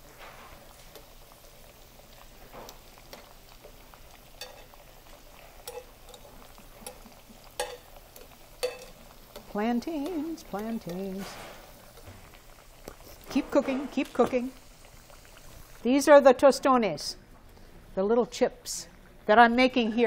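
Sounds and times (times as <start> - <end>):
plantain slices sizzling in oil: 0.0 - 16.2
metal tongs clicking on a pan: 4.4 - 4.7, 5.6 - 11.2.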